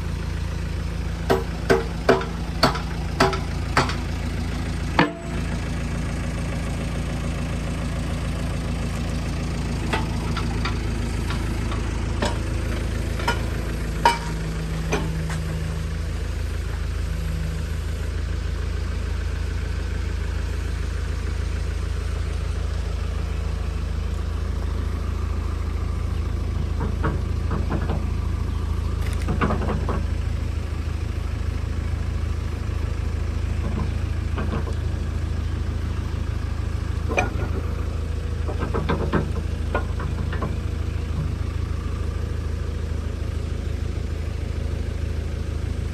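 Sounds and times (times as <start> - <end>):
diesel engine idling: 0.0 - 45.9
short sharp metal clanks: 13.1 - 15.7.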